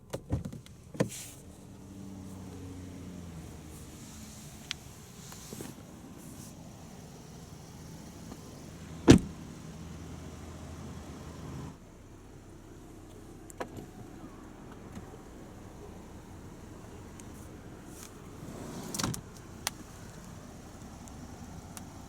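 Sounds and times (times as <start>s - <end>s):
car door shutting: 0.1s - 1.4s, 5.2s - 6.5s, 8.1s - 9.4s, 18.5s - 19.9s.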